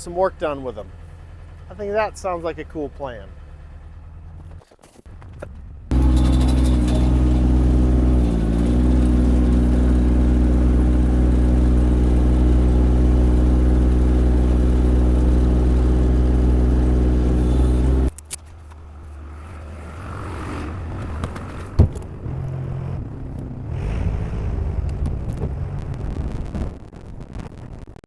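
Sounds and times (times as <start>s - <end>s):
small diesel engine running: 0.0s - 4.6s, 5.6s - 25.8s
faint low rumble: 5.2s - 28.0s.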